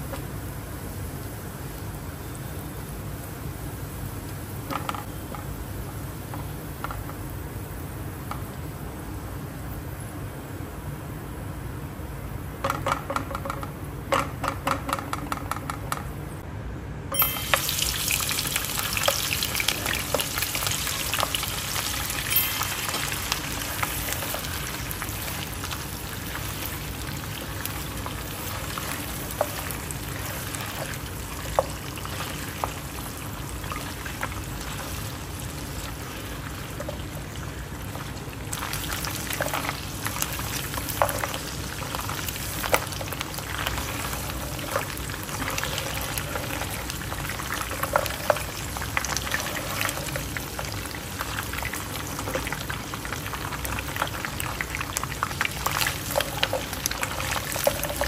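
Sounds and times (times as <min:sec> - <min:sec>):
meat sizzling in hot oil: 0:17.2 - 0:58.0.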